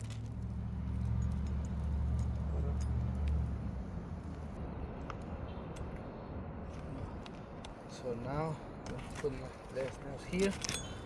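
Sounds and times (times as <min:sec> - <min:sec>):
vehicle engine rumble: 0:00.0 - 0:07.6.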